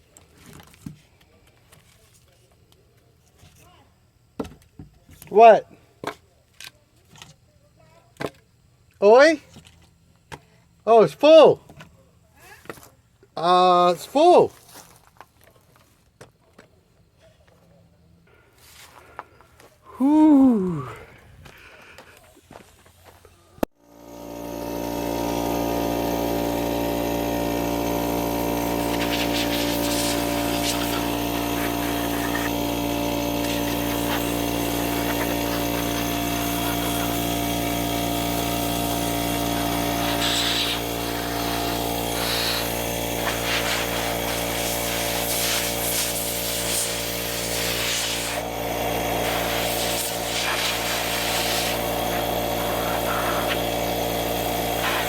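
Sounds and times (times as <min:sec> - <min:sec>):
electric power sander running: 0:23.8 - 0:55.0
sander rubbing against wood: 0:24.1 - 0:55.0.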